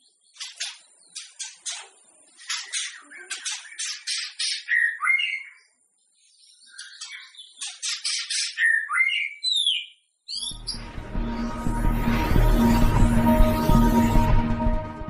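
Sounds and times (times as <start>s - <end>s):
bird singing: 0.0s - 13.2s
music: 10.5s - 15.0s.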